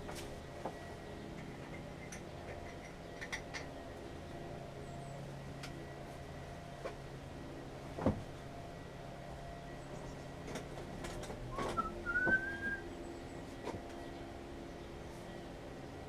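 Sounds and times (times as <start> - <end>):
clicks and knocks of tools: 1.4 - 3.8
short rising whistle: 11.6 - 12.8.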